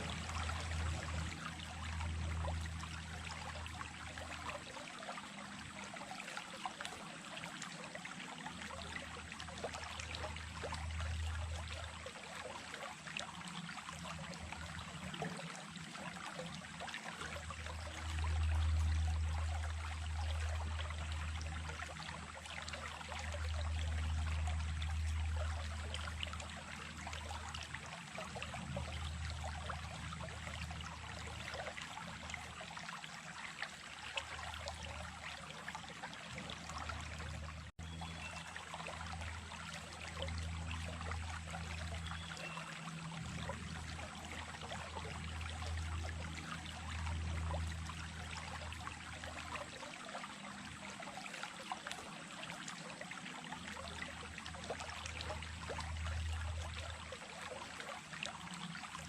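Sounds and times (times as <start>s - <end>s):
low rumble: 0.0s - 4.3s
creek water rushing over stones: 0.0s - 59.0s.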